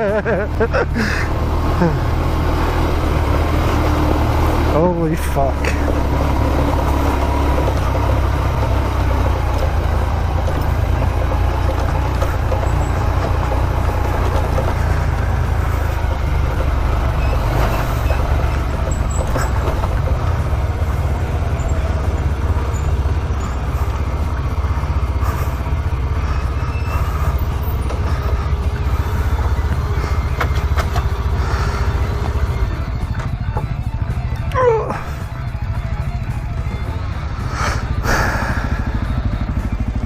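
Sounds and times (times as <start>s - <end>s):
motorcycle engine running: 0.0s - 40.0s
wind and road noise: 0.0s - 40.0s.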